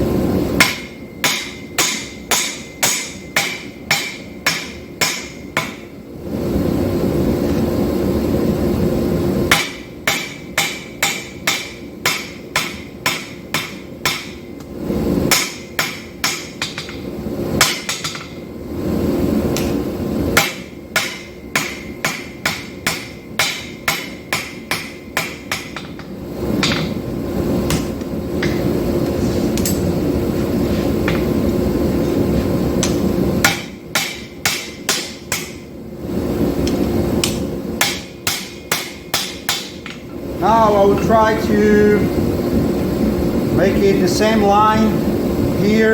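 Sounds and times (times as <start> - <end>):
steady rushing noise: 0.0 - 45.9
hammer striking steel on anvil: 0.6 - 5.9, 9.5 - 14.6, 15.3 - 17.0, 17.6 - 18.4, 20.4 - 27.0, 27.7 - 28.7, 29.6 - 29.9, 32.8 - 35.7, 37.2 - 40.0.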